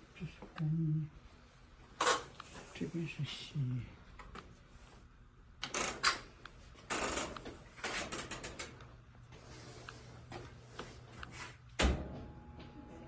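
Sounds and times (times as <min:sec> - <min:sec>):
washing machine clicking and rattling: 0:05.6 - 0:08.9.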